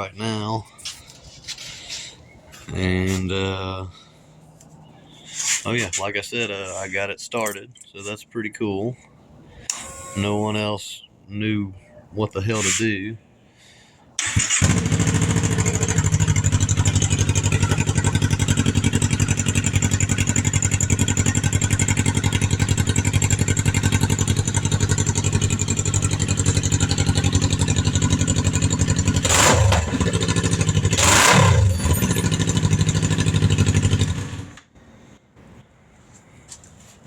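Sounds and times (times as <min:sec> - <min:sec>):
motorcycle engine idling and revving: 0:14.2 - 0:34.6.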